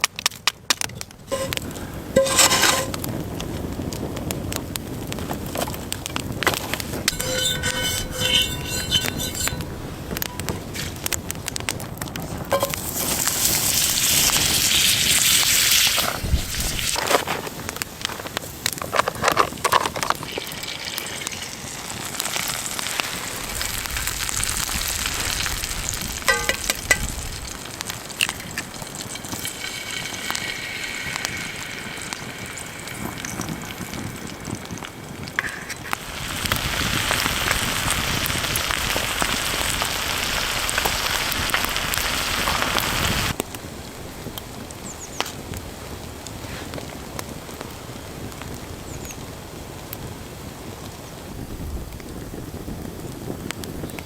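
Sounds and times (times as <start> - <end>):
campfire crackling and popping: 0.0 - 54.0
loud steady sizzle: 0.0 - 54.0
food sizzling: 1.2 - 43.4.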